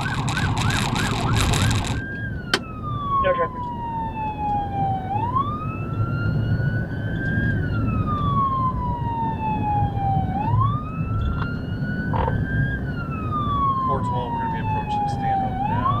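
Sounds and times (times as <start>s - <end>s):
steady low rumble: 0.0s - 2.0s
police siren wailing: 0.0s - 16.0s.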